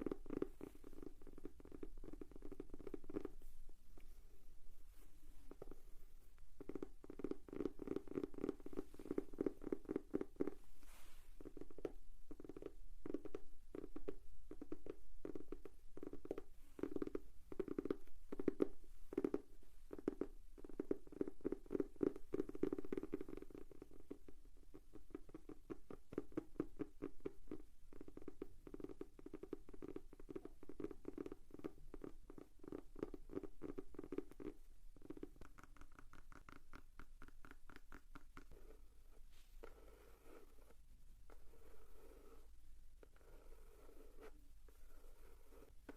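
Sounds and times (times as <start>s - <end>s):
fingers tapping on notebook: 0.0s - 3.4s, 6.6s - 10.6s, 11.4s - 38.9s.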